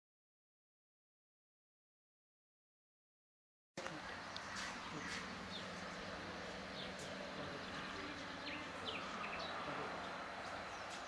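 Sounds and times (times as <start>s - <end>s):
small birds chirping: 3.8s - 11.0s.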